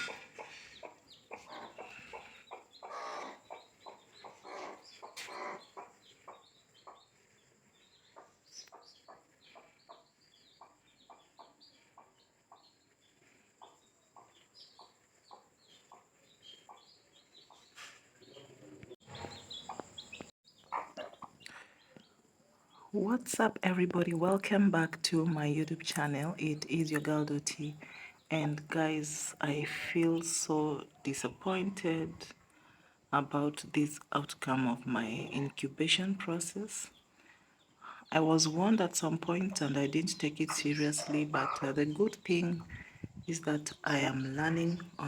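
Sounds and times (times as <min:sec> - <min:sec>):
chickens clucking: 0:00.0 - 0:12.8, 0:13.6 - 0:22.2, 0:38.2 - 0:44.8.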